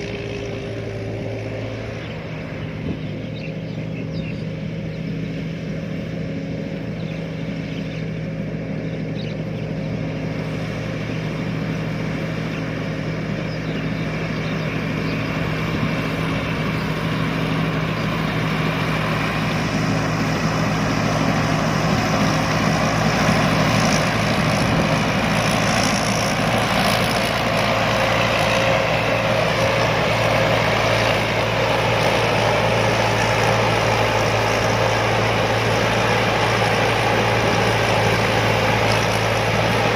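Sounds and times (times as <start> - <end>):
combine harvester engine: 0.0 - 39.9.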